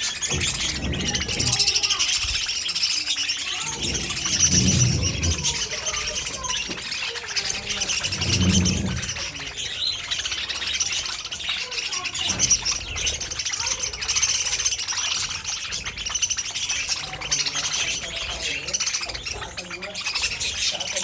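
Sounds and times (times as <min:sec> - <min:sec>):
budgerigars chirping and chattering: 0:00.0 - 0:21.0
low rumbles: 0:03.5 - 0:11.2.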